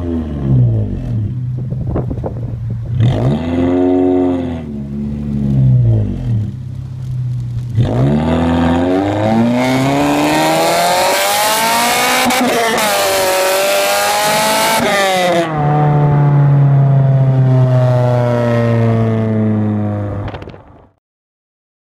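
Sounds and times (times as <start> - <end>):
car engine revving high: 2.8 - 6.6, 7.4 - 20.3.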